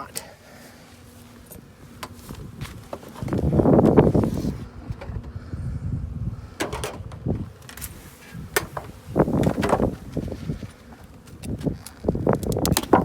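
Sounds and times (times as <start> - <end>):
wind rumble on microphone: 1.6 - 13.0
wooden frames knocking and clicking: 8.5 - 10.2, 12.4 - 13.0.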